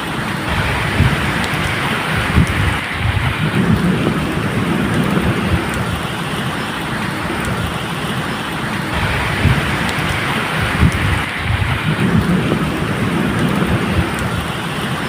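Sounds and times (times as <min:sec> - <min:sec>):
raindrop ticks: 0:00.0 - 0:15.0
steady rain: 0:00.0 - 0:15.0
rolling thunder rumble: 0:00.2 - 0:15.0.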